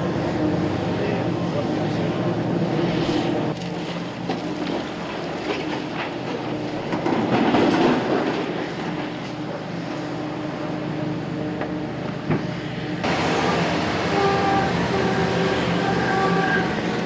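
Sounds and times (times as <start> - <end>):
heavy machine engine clattering: 3.5 - 9.6, 11.5 - 17.0.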